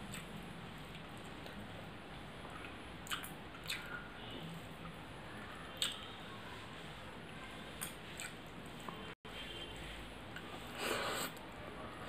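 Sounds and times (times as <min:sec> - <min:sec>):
person chewing with wet smacks: 0:00.0 - 0:01.6, 0:02.4 - 0:04.1, 0:05.8 - 0:06.1, 0:07.8 - 0:09.0.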